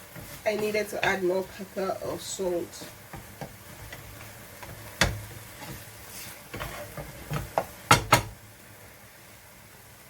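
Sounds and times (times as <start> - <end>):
spoon knocking against cooking pot: 7.6 - 8.3.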